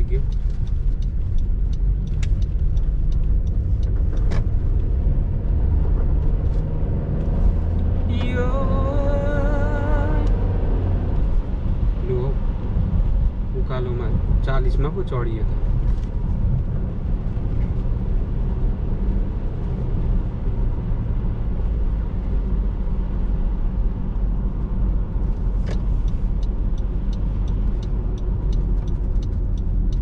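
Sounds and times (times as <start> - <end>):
regular ticking: 0.0 - 6.2, 25.7 - 30.0
car engine and tyre rumble: 0.0 - 30.0.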